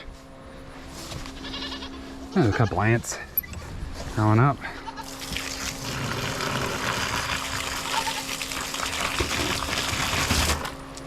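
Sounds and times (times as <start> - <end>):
water running and splashing: 5.2 - 10.7.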